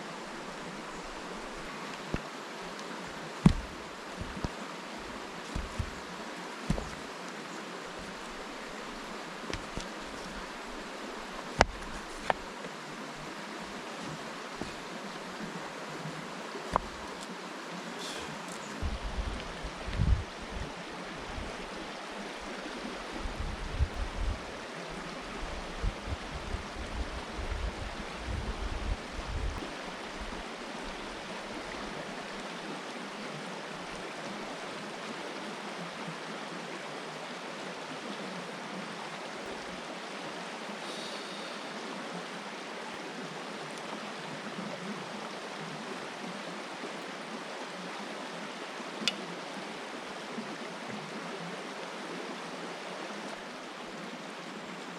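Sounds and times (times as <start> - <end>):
river water rushing: 0.0 - 54.9
low rumbling bumps: 5.5 - 6.0, 18.8 - 20.7.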